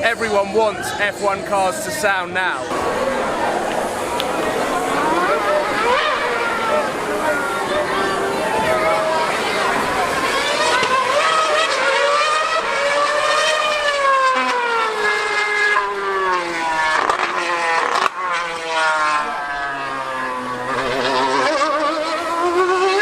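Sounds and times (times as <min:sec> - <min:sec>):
racing car engine screaming: 0:02.7 - 0:23.0.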